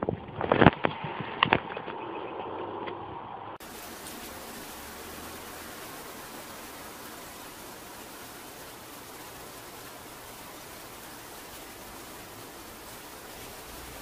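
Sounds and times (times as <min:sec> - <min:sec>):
steady hiss: 0:03.6 - 0:14.0.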